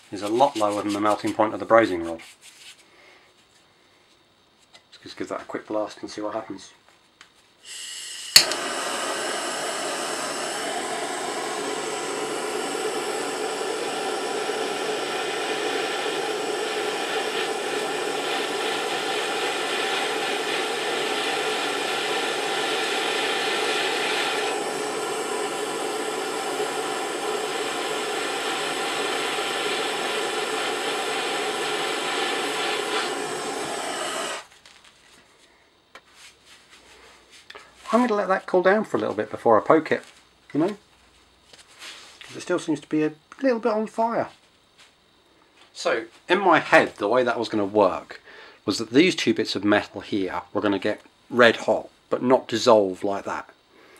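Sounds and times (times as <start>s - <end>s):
blowtorch flame hissing: 7.6s - 34.6s
blowtorch igniter click: 7.7s - 34.5s.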